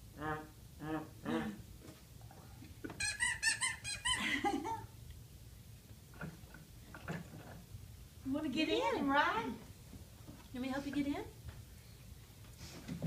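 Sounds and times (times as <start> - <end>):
toy car squeaky horn: 3.0 - 4.2.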